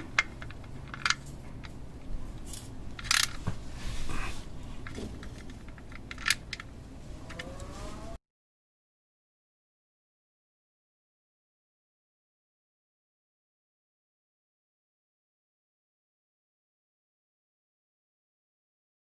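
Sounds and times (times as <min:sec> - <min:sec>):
hand tools clicking and clinking: 0:00.0 - 0:01.8.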